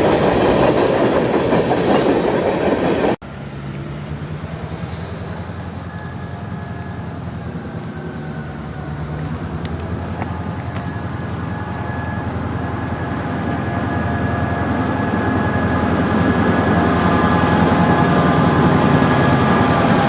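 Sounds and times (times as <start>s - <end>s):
freight train cars rolling: 0.0s - 20.0s
wheels clicking over rail joints: 8.0s - 20.0s.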